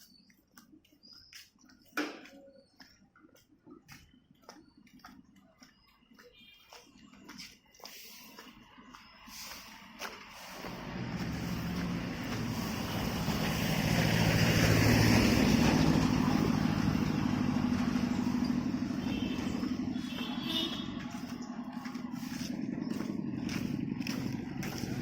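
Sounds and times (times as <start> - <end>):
steady traffic: 0.0 - 25.0
vehicle engine passing by: 9.3 - 25.0.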